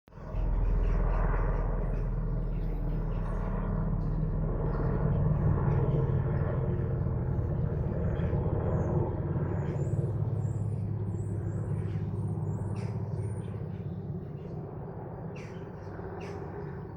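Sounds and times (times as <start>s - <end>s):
helicopter engines and rotors: 0.1s - 16.9s.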